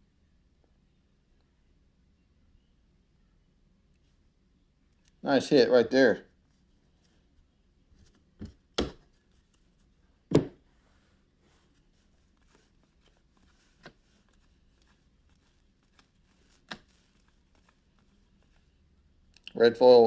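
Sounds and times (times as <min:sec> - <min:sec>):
cards tapping on a table: 0:08.4 - 0:09.0
cards rustling: 0:11.6 - 0:19.4.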